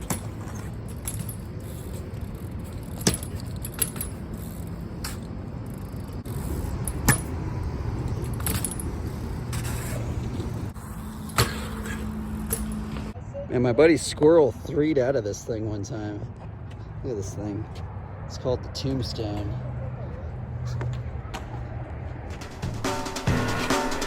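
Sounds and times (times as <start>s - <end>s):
bike tyres rolling on concrete: 0.0s - 13.2s.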